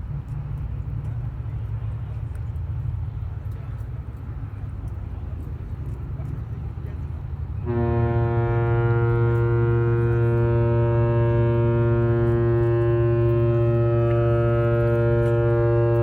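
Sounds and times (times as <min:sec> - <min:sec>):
ship horn long blast: 0:07.6 - 0:16.0.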